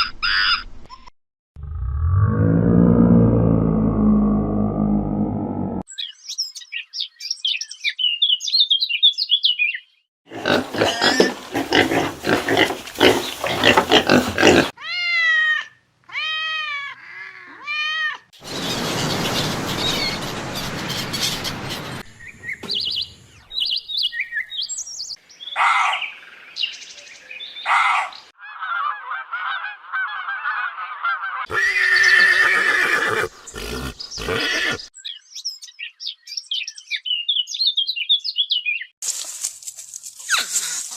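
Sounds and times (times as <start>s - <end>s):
harsh animal calls: 10.3s - 18.1s, 27.7s - 34.9s
rising and falling animal cries: 10.3s - 18.3s, 27.7s - 34.9s.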